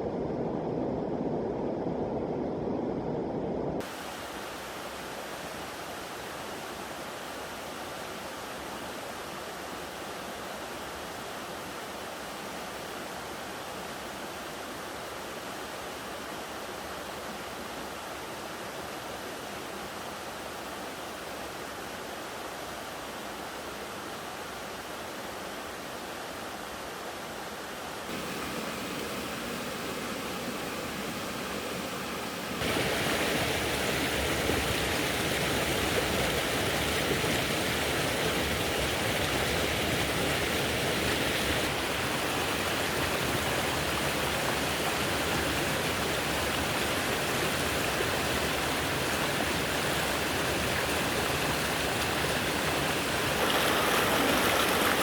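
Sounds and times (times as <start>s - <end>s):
stream rushing water: 0.0s - 55.0s.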